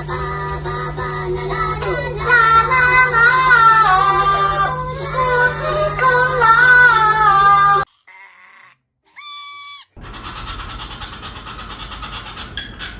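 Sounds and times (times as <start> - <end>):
parrot singing: 9.2 - 12.9.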